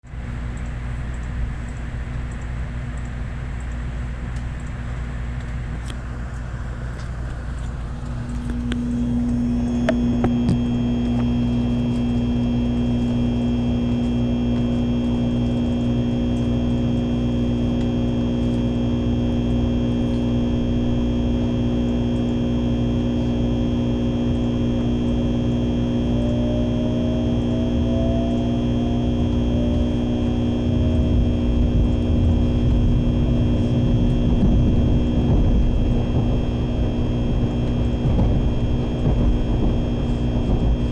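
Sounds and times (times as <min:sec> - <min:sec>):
train rumble: 0:00.0 - 0:40.9
electric traction whine: 0:05.4 - 0:40.9.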